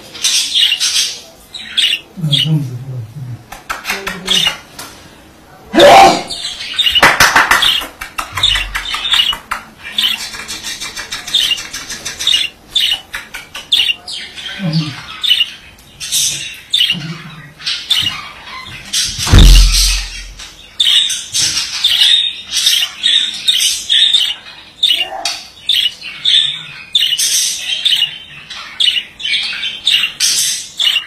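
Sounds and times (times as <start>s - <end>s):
budgerigar warbling and chattering: 0.2s - 2.7s, 7.6s - 20.2s, 21.8s - 31.0s.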